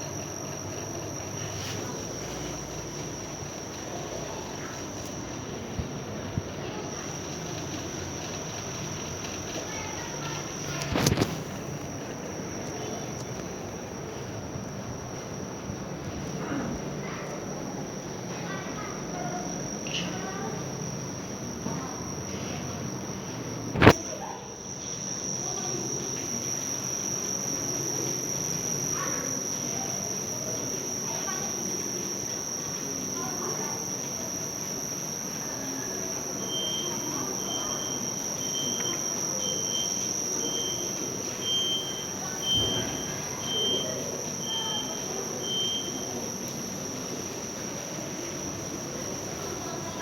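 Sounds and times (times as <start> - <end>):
faint voices: 0.0 - 50.0.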